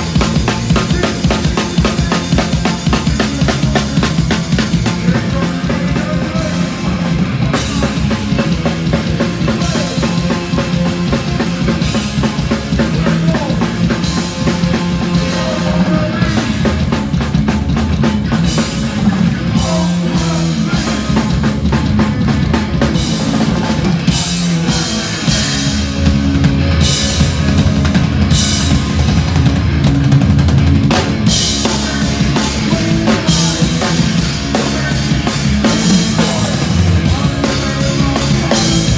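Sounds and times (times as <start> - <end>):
loud drum kit: 0.0 - 38.9
punk band playing live: 0.0 - 38.9.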